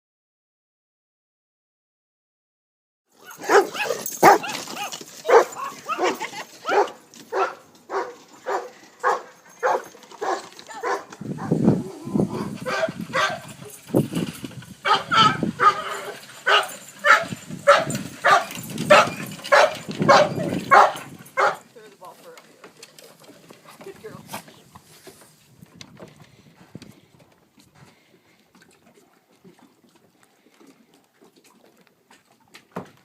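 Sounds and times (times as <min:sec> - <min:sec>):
dog barking: 0:03.2 - 0:11.5, 0:12.4 - 0:13.5, 0:14.8 - 0:21.6.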